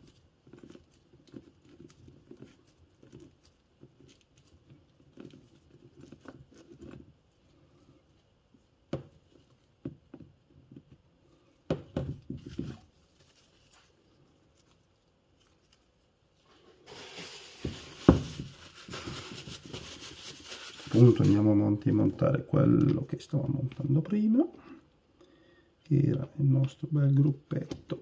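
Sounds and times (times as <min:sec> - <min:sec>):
low hiss: 0:12.9 - 0:28.0.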